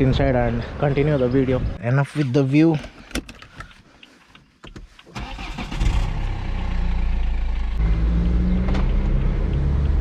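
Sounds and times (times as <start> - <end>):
car engine starting and running: 5.1 - 10.0.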